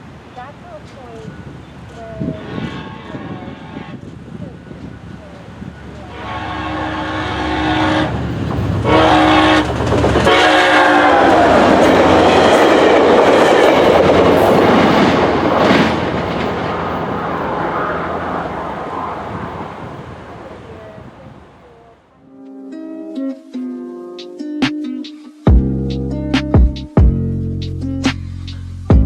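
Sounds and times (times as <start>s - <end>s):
train horn blasts: 2.2s - 4.1s, 6.0s - 16.2s
train wheels clickety-clack: 7.9s - 18.6s.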